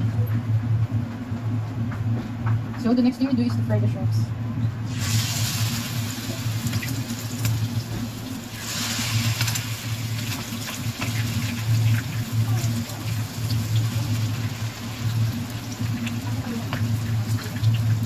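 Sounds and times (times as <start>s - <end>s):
steady low hum: 0.0s - 18.0s
shrimp deep-frying in oil: 4.8s - 18.0s.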